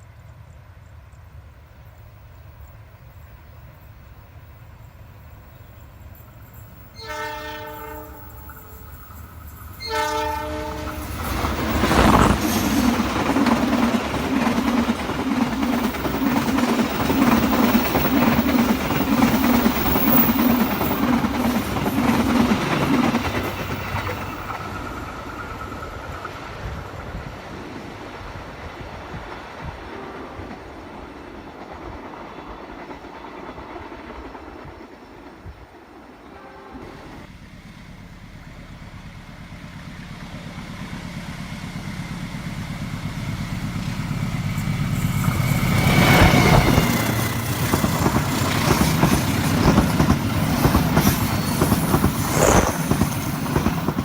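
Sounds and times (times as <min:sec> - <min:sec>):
train horn blasts: 0:06.9 - 0:08.9, 0:09.8 - 0:11.2, 0:36.3 - 0:37.3
train wheels clattering: 0:08.4 - 0:27.5, 0:43.6 - 0:54.0
locomotive engine hum: 0:36.8 - 0:54.0.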